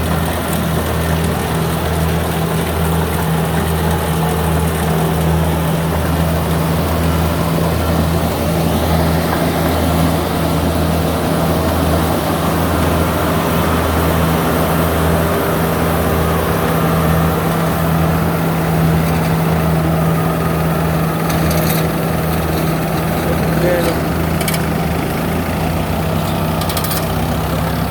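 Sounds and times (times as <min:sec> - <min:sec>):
combine harvester diesel engine: 0:00.0 - 0:27.9.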